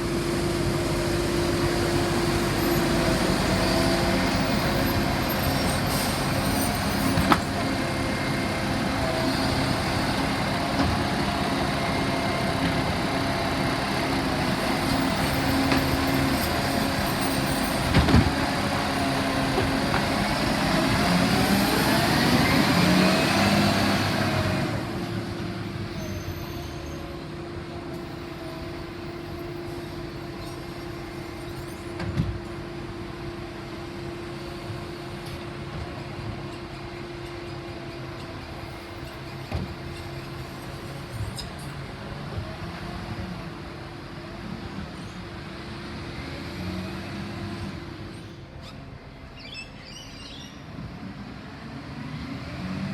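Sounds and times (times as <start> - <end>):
hydraulics running: 0.0 - 32.9
garbage truck engine: 0.0 - 52.9.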